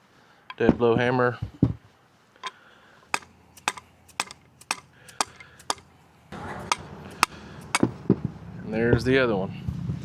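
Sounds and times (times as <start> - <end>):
hammer tapping metal socket: 3.2 - 5.9, 6.7 - 7.9.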